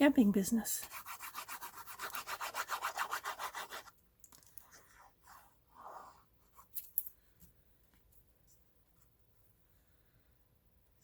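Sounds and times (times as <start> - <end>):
paper rubbing: 0.8 - 3.9.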